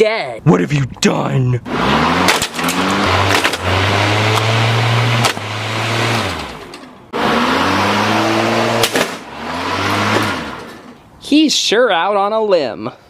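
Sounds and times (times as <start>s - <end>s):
lawnmower engine running: 1.7s - 11.0s.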